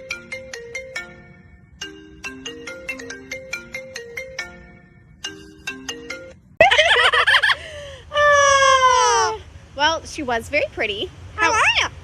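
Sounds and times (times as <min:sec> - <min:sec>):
marimba phone ringtone: 0:00.0 - 0:06.6
loud wavering warbling cry: 0:11.4 - 0:12.0.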